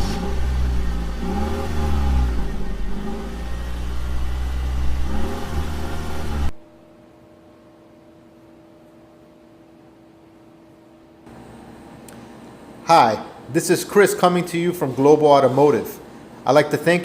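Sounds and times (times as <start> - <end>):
car engine revving: 0.0 - 6.6
faint steady hum: 6.4 - 17.0.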